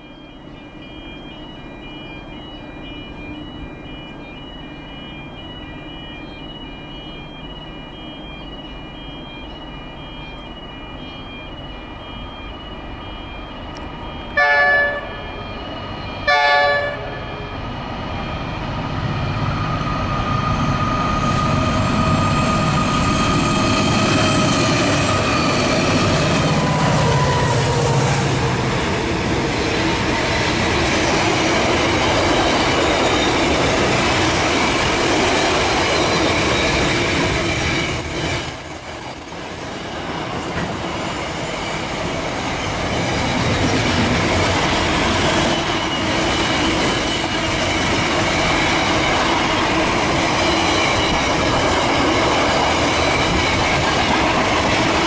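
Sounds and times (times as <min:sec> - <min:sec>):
diesel locomotive engine passing: 0:00.0 - 0:55.0
locomotive horn blasts: 0:14.4 - 0:15.3, 0:16.2 - 0:17.4.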